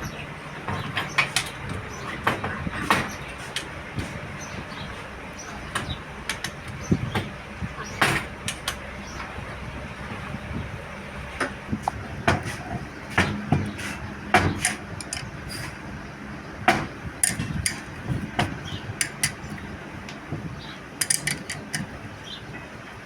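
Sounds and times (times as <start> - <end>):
metal hand tools clinking: 14.6 - 15.3, 17.2 - 17.9, 19.0 - 19.5, 21.0 - 21.9.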